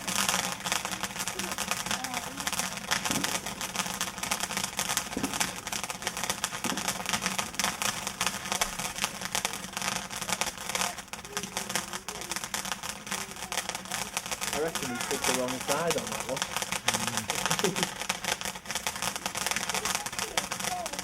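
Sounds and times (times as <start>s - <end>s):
firework crackling: 0.0s - 21.0s.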